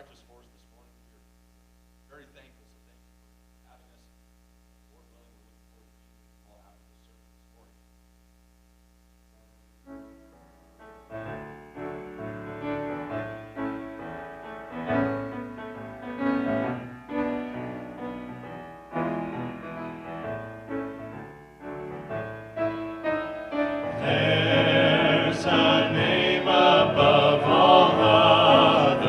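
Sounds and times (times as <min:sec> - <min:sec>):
gospel piano playing: 0:09.8 - 0:29.0.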